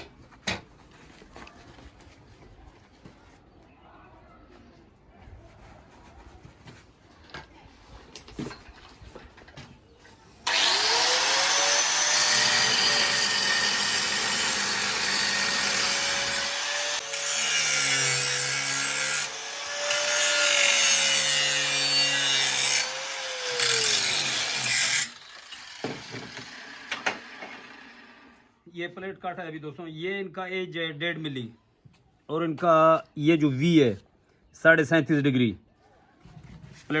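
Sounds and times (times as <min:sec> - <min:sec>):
angle grinder cutting steel: 0:10.4 - 0:28.4.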